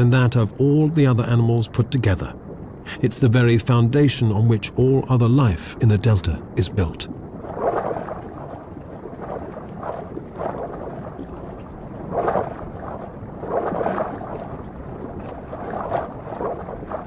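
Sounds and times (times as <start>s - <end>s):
wind noise: 0.0s - 17.0s
water sloshing: 6.5s - 17.0s.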